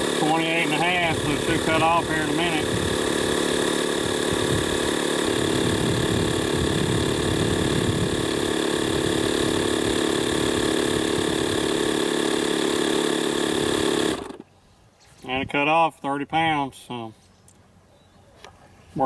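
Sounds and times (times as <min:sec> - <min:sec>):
air compressor running: 0:00.0 - 0:14.6.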